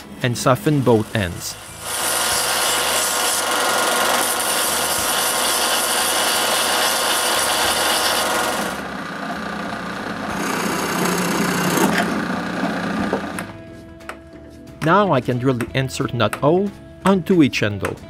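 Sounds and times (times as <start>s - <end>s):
sanding wood: 0.8s - 8.8s.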